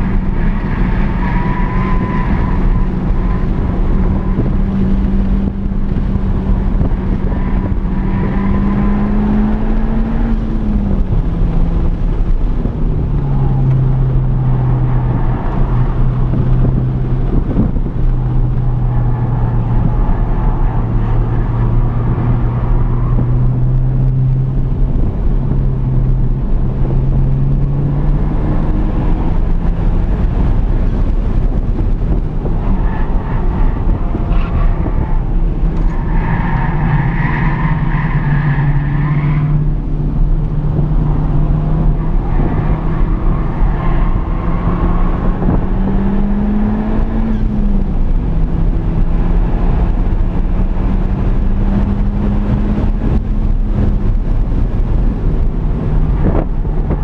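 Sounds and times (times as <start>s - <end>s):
car engine under load: 0.0s - 57.0s
road and wind noise: 0.0s - 57.0s.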